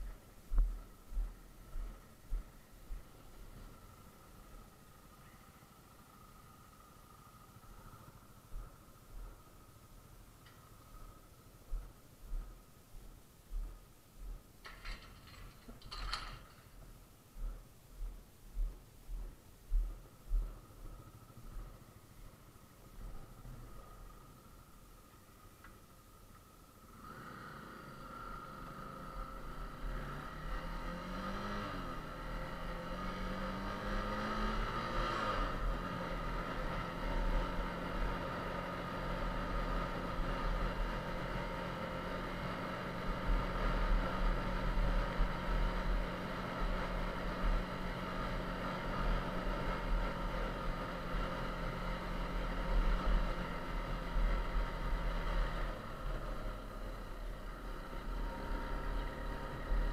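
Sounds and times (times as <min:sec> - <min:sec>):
low rumble: 0:00.0 - 0:25.2
motorcycle engine pulling away: 0:20.4 - 0:59.9.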